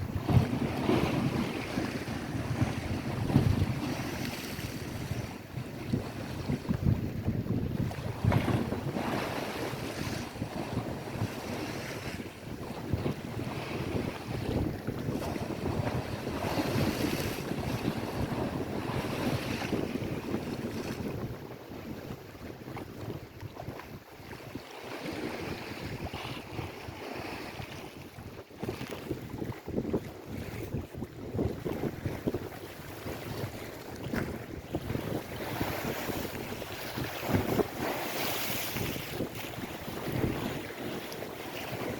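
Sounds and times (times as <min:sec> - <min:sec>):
waves washing on shore: 0:00.0 - 0:21.4, 0:24.2 - 0:41.9
wind buffeting microphone: 0:00.0 - 0:41.9.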